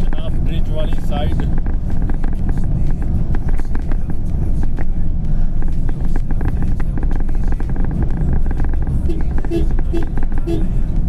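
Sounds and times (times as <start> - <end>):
road and engine rumble: 0.0 - 11.0
small clicks and rattles: 5.6 - 10.5.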